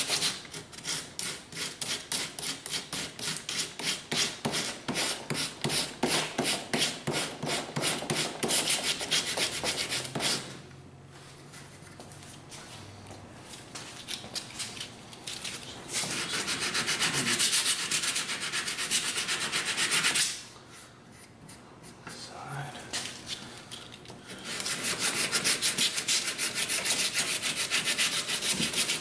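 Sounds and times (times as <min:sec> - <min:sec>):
sandpaper rubbing on wood: 0:16.0 - 0:20.2, 0:24.4 - 0:29.0.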